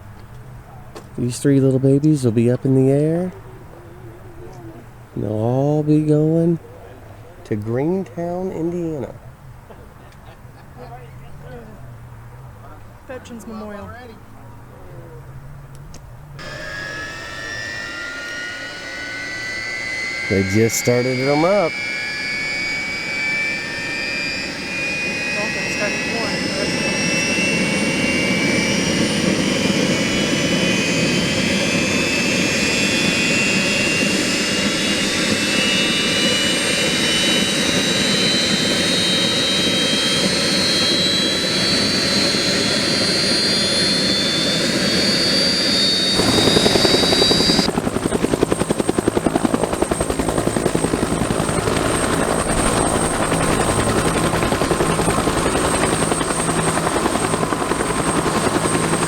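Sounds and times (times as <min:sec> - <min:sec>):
helicopter turbine whine: 0:00.0 - 0:14.1, 0:16.2 - 0:59.0
rotor beating: 0:16.4 - 0:59.0.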